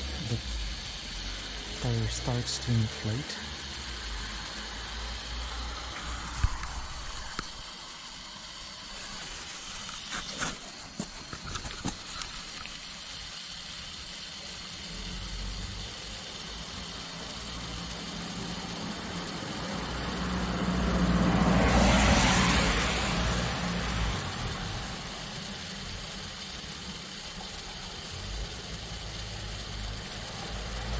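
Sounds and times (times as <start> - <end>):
faint hiss: 0.0 - 30.9
vehicle engine rumble passing: 14.9 - 27.1.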